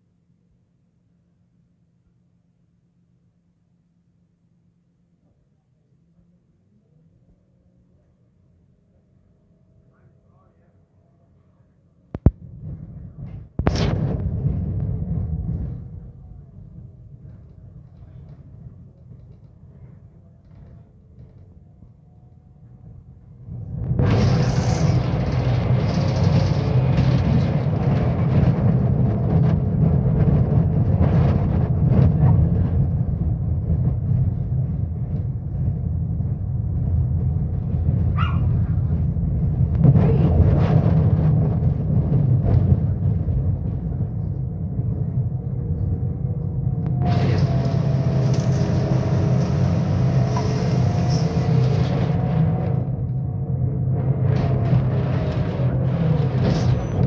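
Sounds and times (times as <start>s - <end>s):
bus diesel engine rumbling: 14.0s - 57.0s
gearbox whine: 23.5s - 32.1s, 35.1s - 57.0s.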